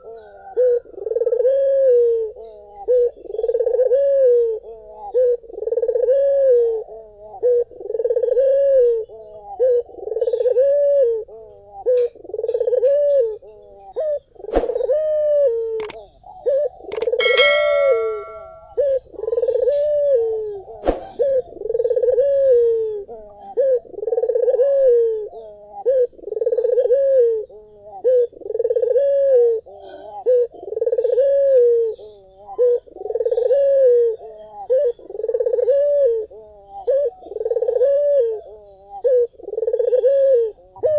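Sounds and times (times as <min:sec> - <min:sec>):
dove cooing: 0:00.0 - 0:40.9
sharp clicks: 0:15.8 - 0:16.0, 0:16.9 - 0:18.6
short high tone: 0:17.0 - 0:18.7.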